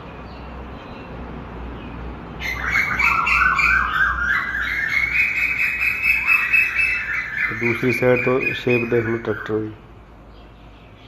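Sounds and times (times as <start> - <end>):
harsh bird calls squawking: 2.4 - 11.0.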